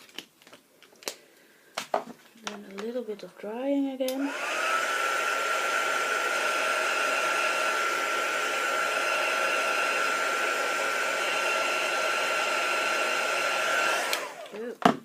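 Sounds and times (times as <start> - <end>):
heat tool blowing with whine: 4.1 - 14.6.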